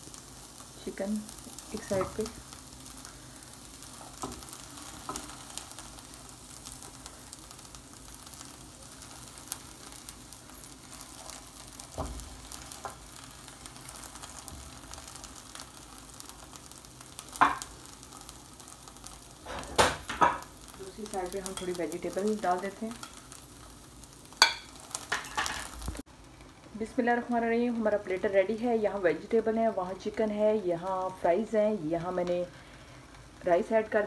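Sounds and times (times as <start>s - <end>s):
food sizzling in frying pan: 0.0s - 34.0s
knocks in the pan: 17.4s - 17.7s, 19.5s - 20.5s.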